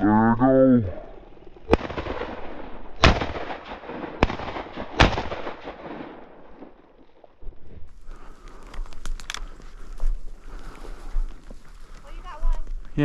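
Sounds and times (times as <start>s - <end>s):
shotgun shots with rolling echo: 1.7s - 6.8s.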